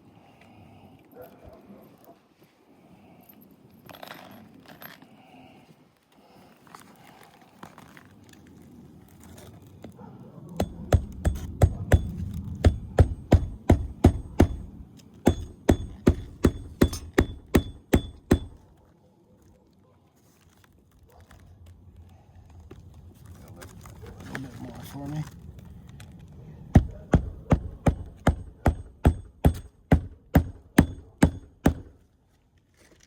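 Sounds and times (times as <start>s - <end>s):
handling rustle: 6.0s - 10.2s, 18.6s - 26.7s, 31.9s - 33.0s
hammer striking roofing nails: 10.6s - 18.7s, 26.7s - 32.0s.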